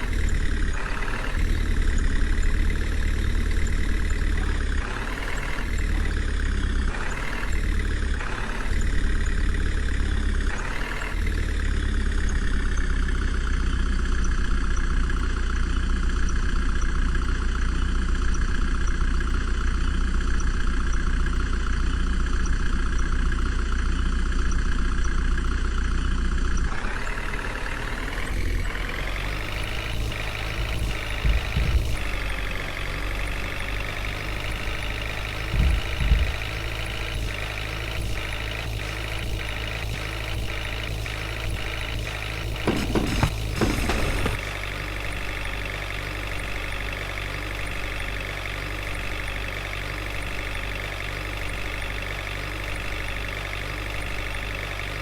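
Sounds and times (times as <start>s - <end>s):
diesel engine running: 0.0s - 55.0s
short thuds: 42.6s - 44.6s.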